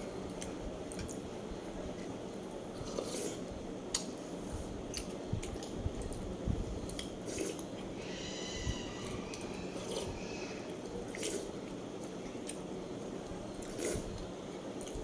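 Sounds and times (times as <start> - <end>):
wet chewing and smacking: 4.9 - 7.7.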